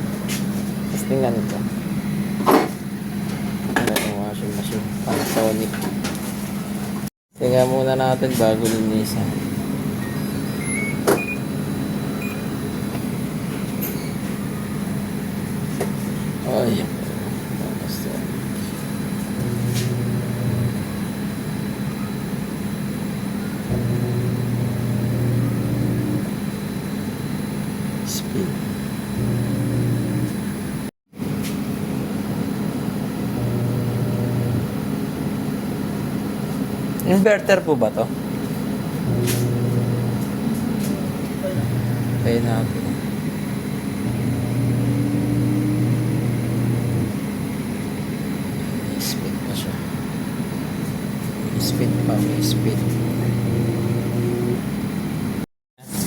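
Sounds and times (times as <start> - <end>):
washing machine humming: 0.0 - 56.0
motor deeper hum: 19.3 - 21.0, 23.6 - 26.4, 29.1 - 30.9, 32.3 - 34.9, 38.7 - 48.0, 51.3 - 54.9
washing machine drum spinning: 38.8 - 47.9.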